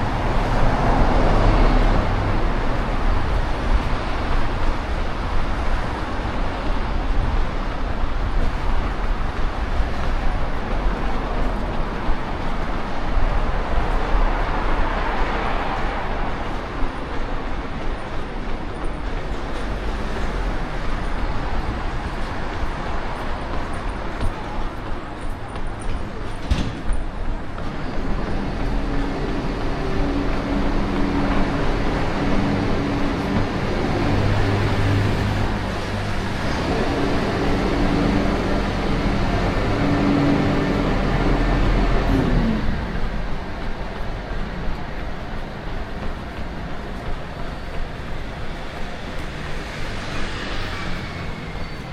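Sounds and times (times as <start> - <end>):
road noise: 0.0 - 51.9
street traffic noise: 0.0 - 51.9
vehicle engine hum: 0.0 - 51.9
passing vehicle hiss: 49.0 - 51.9.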